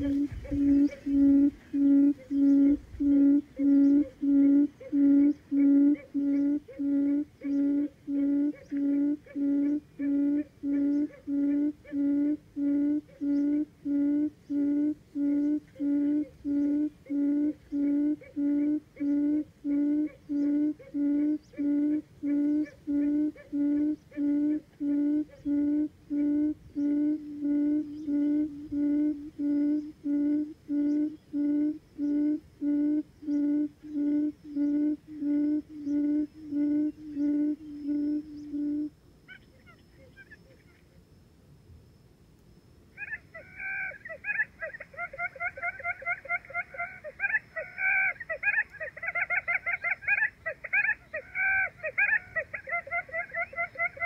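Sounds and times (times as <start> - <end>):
quail low hooting calls: 0.0 - 41.0, 42.9 - 54.0.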